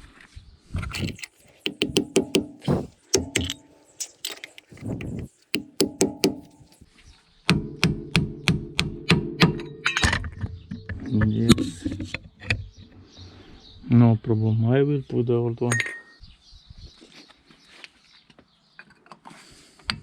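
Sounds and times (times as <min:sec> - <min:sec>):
metallic clicks on wheel hub: 0:00.9 - 0:06.8.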